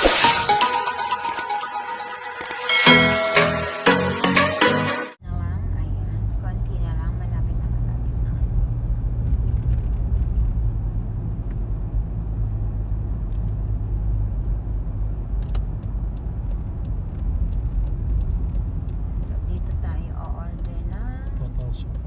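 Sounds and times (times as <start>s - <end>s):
car rumbling on the road: 5.2s - 22.0s.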